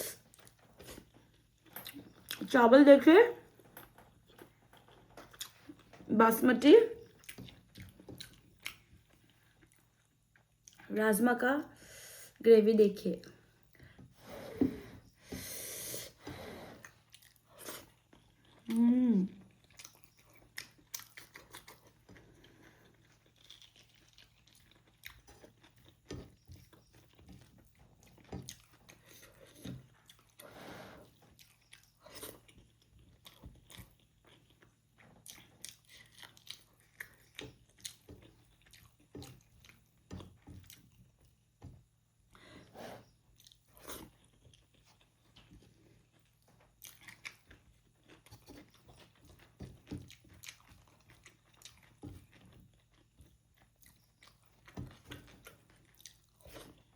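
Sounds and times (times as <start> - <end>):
chewing and mouth smacks: 4.1 - 6.0, 7.0 - 10.9, 16.8 - 18.8, 19.4 - 30.4, 31.0 - 42.4, 43.0 - 56.9
person humming: 18.7 - 19.4.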